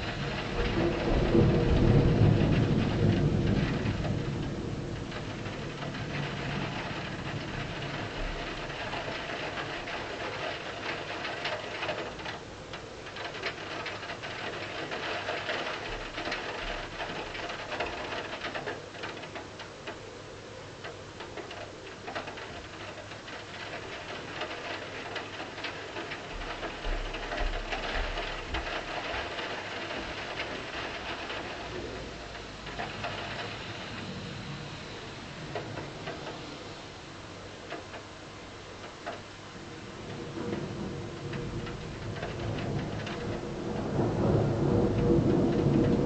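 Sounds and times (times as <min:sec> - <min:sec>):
low rumbles: 0:00.0 - 0:10.0, 0:22.6 - 0:38.3, 0:39.0 - 0:46.0
steady rain: 0:00.0 - 0:46.0.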